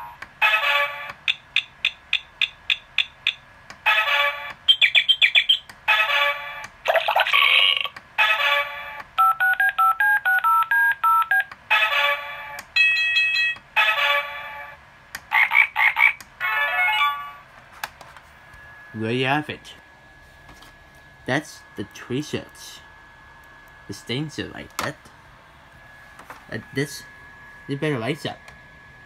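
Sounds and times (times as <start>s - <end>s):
simple beeping tune: 9.2s - 11.4s.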